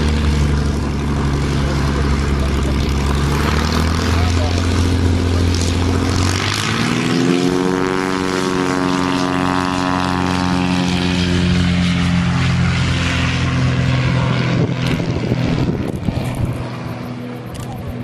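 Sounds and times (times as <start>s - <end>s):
propeller plane engine droning: 0.0s - 18.0s.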